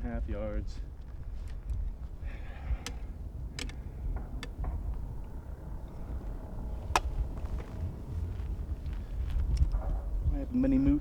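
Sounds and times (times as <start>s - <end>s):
wind rumbling on microphone: 0.0s - 11.0s
sharp clicks: 2.8s - 3.8s.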